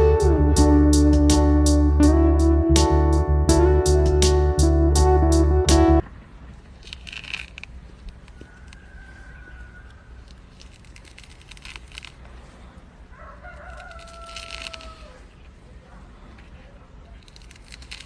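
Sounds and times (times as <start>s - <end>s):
distant rooster crowing: 8.3s - 10.2s, 13.1s - 15.2s.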